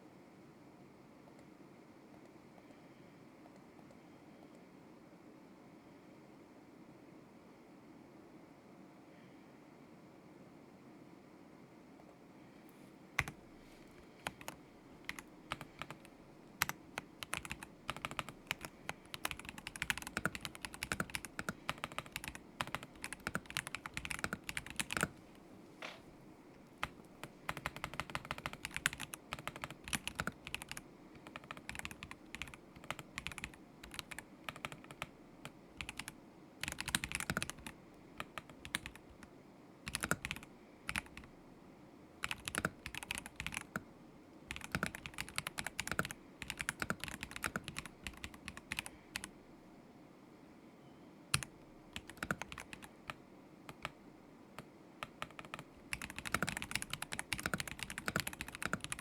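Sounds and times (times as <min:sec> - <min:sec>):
mechanical keyboard typing: 0:13.2 - 0:13.4, 0:14.2 - 0:25.2, 0:26.8 - 0:35.2, 0:35.8 - 0:39.3, 0:39.9 - 0:41.3, 0:42.2 - 0:43.8, 0:44.5 - 0:49.3, 0:51.3 - 0:53.9, 0:54.6 - 0:59.0.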